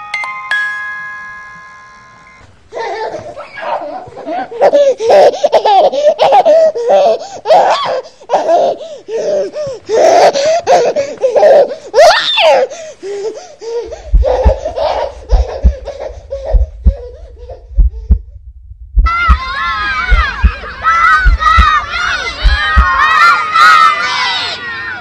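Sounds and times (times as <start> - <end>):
baby giggling: 2.7 - 17.8
baby squealing: 4.6 - 12.7, 13.7 - 17.7
low thumps: 13.9 - 23.0.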